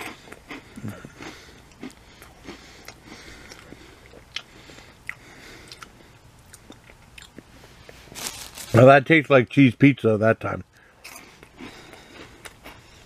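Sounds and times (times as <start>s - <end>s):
person chewing crunchy snacks: 0.0s - 8.8s, 10.7s - 13.0s.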